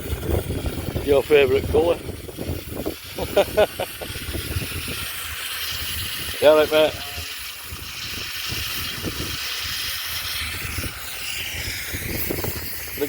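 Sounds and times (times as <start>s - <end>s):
steam hissing: 0.0s - 13.0s.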